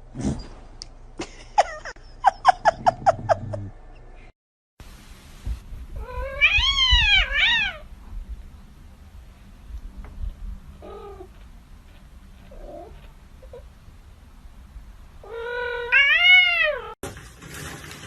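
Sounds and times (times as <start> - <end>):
cat meowing: 6.0 - 7.9, 15.2 - 17.0.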